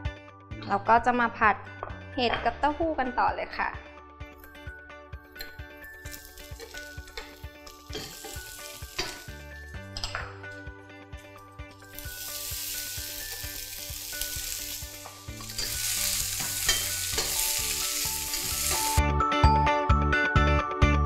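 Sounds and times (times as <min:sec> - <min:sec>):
background music: 0:00.0 - 0:21.0
food sizzling in oil: 0:05.4 - 0:09.7, 0:11.8 - 0:19.0.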